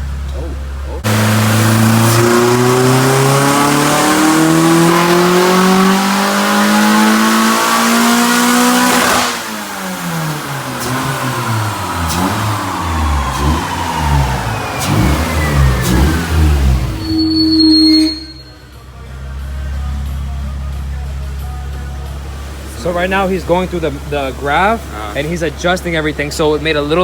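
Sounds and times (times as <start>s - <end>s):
car engine revving at full throttle: 0.0s - 18.3s
exhaust pops: 8.8s - 18.6s.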